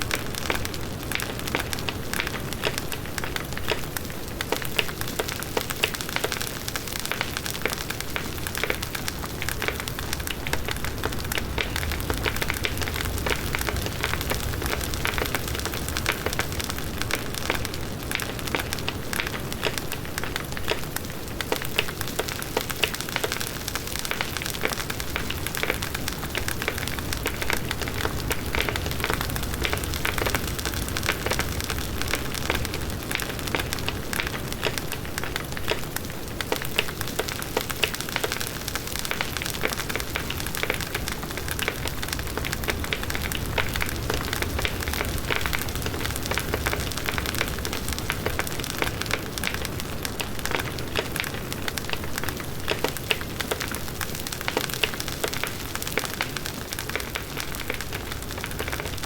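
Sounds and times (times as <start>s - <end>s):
burning wood crackling and popping: 0.0s - 59.0s
low rush of flames: 8.1s - 19.9s.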